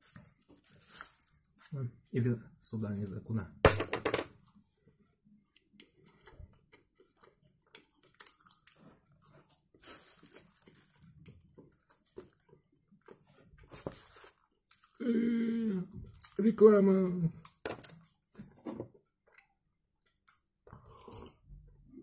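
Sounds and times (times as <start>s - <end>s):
wet chewing sounds: 4.9s - 13.7s.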